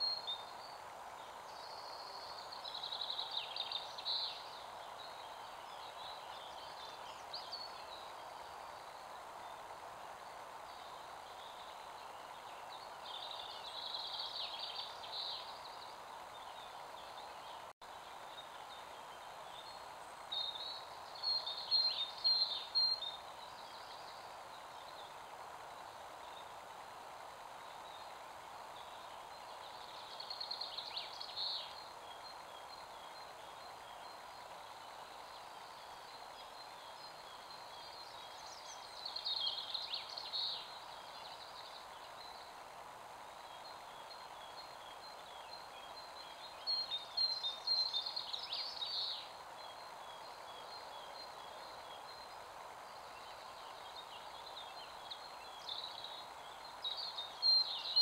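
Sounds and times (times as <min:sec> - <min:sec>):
faint bird chirps: 0:00.0 - 0:58.0
songbird singing: 0:00.0 - 0:58.0
steady background hiss: 0:00.0 - 0:58.0.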